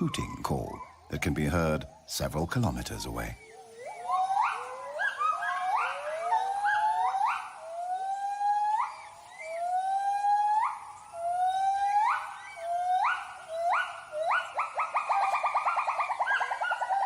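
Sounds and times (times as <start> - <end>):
gibbons whooping: 3.8 - 17.0.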